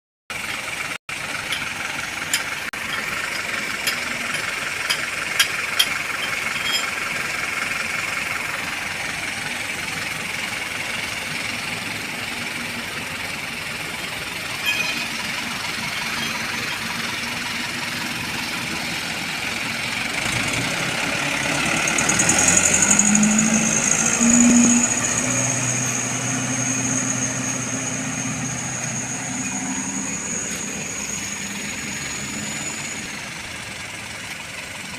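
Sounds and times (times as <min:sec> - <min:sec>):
truck engine idling: 0:00.3 - 0:34.9
high-pitched tone: 0:14.6 - 0:17.3, 0:22.4 - 0:33.0.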